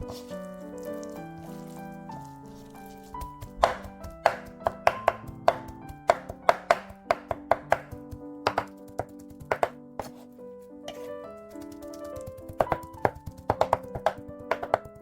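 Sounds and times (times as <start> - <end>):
light background music: 0.0 - 15.0
knife chopping on cutting board: 3.2 - 10.3, 12.4 - 14.9.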